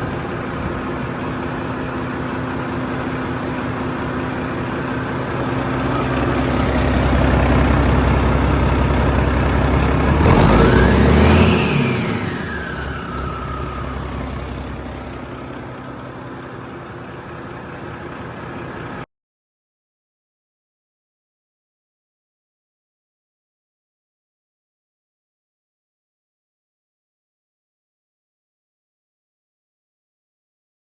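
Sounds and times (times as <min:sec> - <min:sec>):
diesel engine idling and revving: 0:00.0 - 0:19.0
engine whine: 0:00.0 - 0:19.0.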